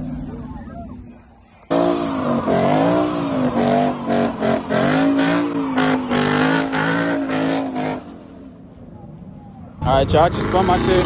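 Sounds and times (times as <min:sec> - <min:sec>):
car engine revving: 0:00.0 - 0:08.4, 0:09.8 - 0:11.0.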